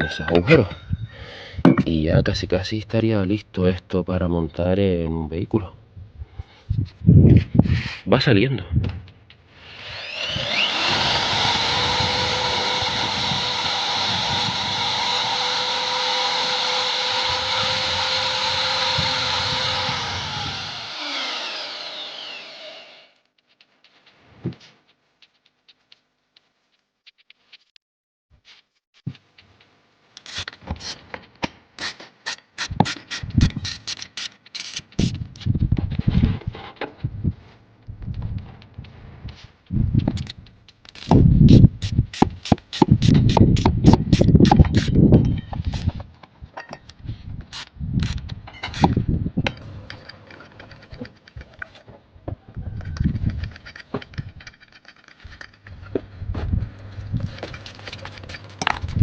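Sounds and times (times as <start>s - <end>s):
dull thumps: 1.6s - 2.0s
clicks scrapes and knocks on metal parts: 30.2s - 35.5s, 42.4s - 51.9s, 52.8s - 56.0s, 57.2s - 58.9s.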